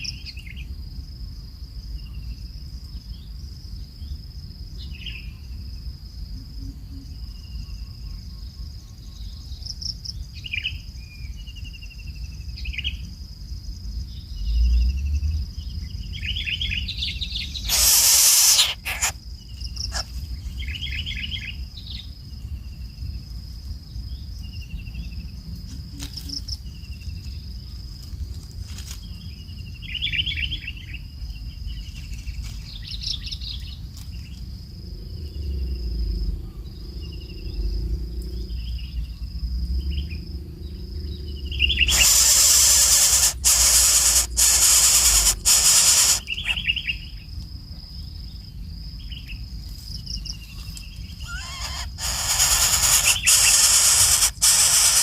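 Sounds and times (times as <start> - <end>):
high insect drone: 0.0 - 55.0
small birds chirping: 15.6 - 23.2, 36.4 - 55.0
loud hiss: 17.6 - 19.2, 41.8 - 46.6, 51.3 - 55.0
low rumble: 34.6 - 41.9.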